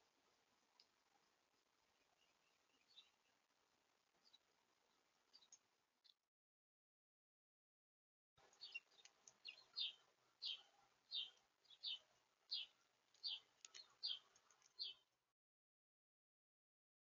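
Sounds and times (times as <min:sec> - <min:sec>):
faint clicks: 0:00.7 - 0:01.0, 0:08.4 - 0:09.6, 0:13.1 - 0:15.0
small bird calling: 0:08.5 - 0:15.0.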